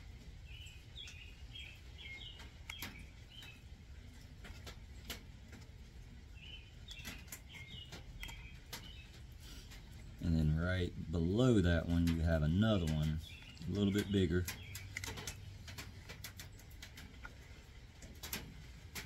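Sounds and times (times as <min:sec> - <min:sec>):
small bird chirping: 0:00.4 - 0:03.7, 0:06.3 - 0:09.6, 0:13.0 - 0:16.7
faint sharp clicks: 0:02.4 - 0:03.6.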